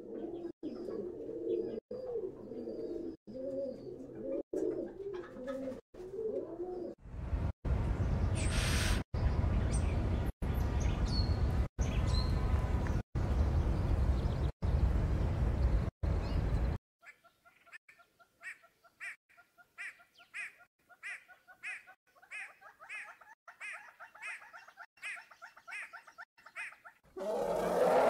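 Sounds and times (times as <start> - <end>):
bird cooing: 0.0 - 7.0, 27.2 - 28.0.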